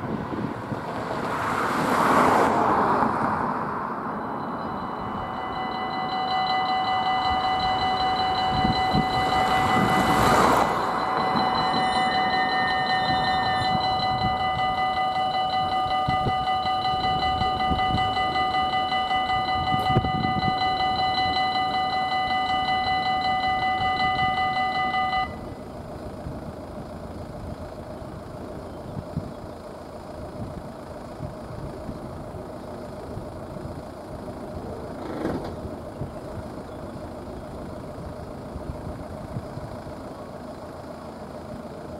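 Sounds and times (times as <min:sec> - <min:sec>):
train passing: 0:00.0 - 0:27.0
engines idling: 0:00.0 - 0:41.9
level crossing warning bell: 0:04.0 - 0:28.6.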